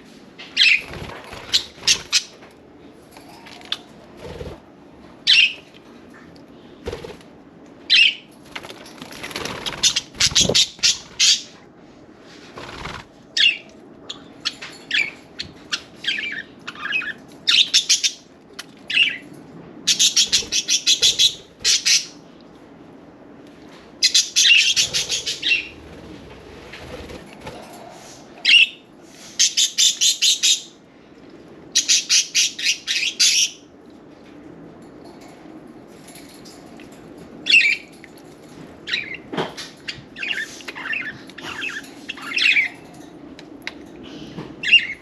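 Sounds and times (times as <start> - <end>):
wings flapping: 0.8 - 2.3, 8.5 - 11.2, 12.5 - 13.2.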